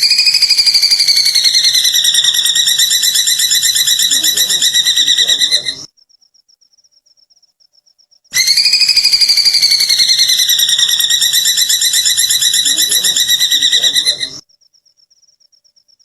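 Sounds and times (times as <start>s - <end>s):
bird cackling trill: 0.0s - 5.9s, 8.4s - 14.4s.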